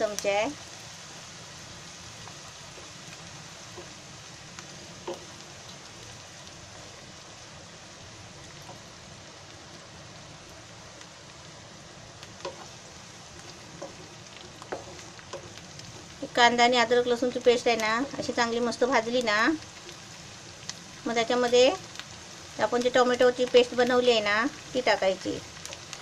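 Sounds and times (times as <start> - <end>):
onions sizzling in oil: 0.0 - 26.0
spatula stirring and knocking pan: 2.2 - 5.5, 12.2 - 16.6.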